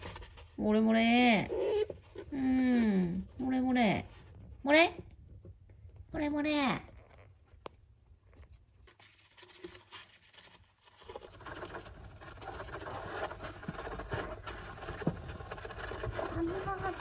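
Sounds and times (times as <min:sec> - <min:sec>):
hamster scratching and scrabbling: 0:00.0 - 0:02.6, 0:07.2 - 0:17.0.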